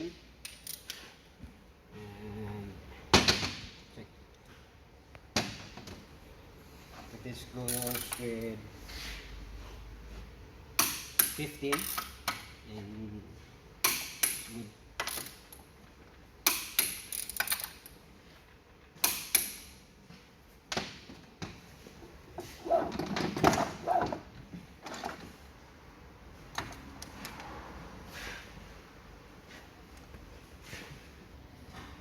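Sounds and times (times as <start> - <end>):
metal parts rattling and scraping: 22.6 - 25.4.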